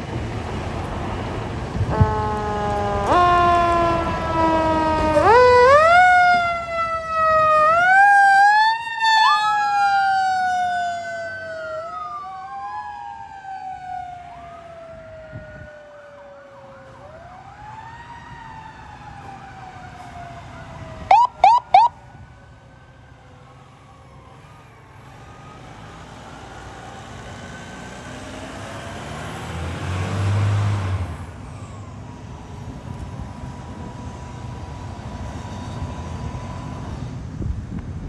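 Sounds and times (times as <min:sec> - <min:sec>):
emergency vehicle sirens wailing: 0:00.0 - 0:38.0
loud horn blasts: 0:01.8 - 0:05.7.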